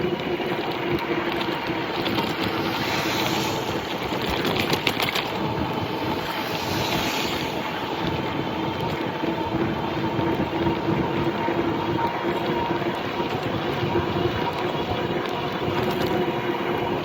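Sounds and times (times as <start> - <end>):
electric motor hum: 0.0 - 11.7
tyre and wind noise: 0.0 - 17.0.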